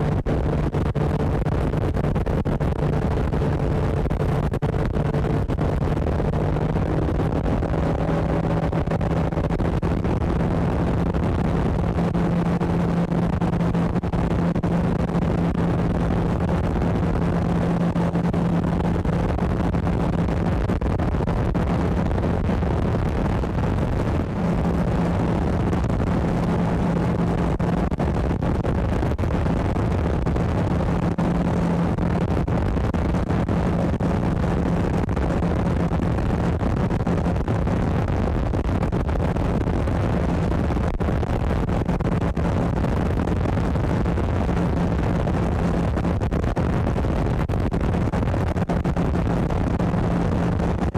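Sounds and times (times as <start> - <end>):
motorboat engine humming: 0.0 - 37.3.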